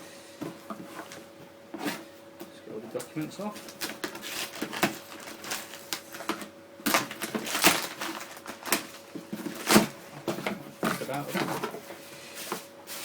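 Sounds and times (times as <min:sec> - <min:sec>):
paper and packaging rustling: 0:02.9 - 0:13.0.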